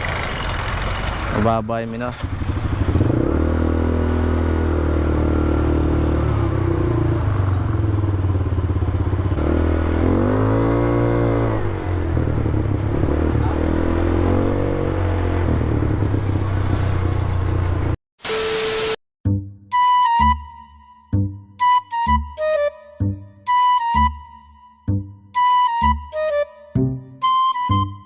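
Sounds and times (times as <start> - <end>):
engine idling and revving: 0.0 - 18.0.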